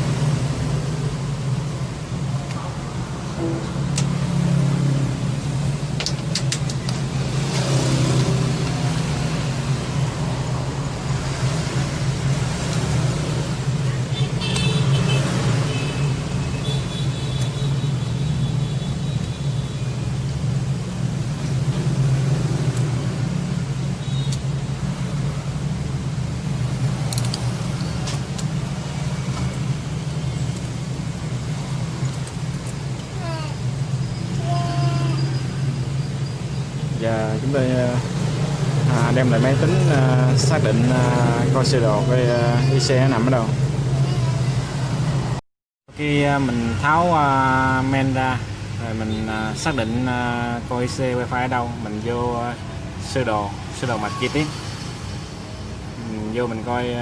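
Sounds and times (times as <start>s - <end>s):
sharp small clicks: 27.0s - 28.6s.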